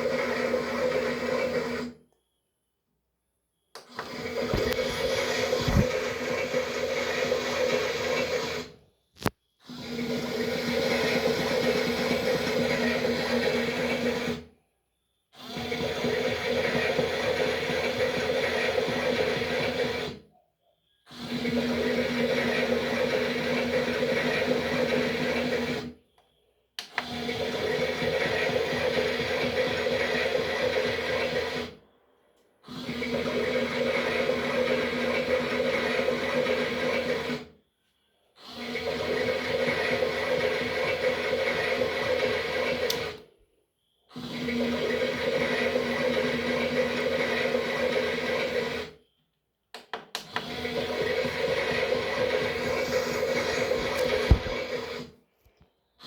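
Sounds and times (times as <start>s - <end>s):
small electric motor humming: 4.4s - 8.7s, 50.7s - 55.1s.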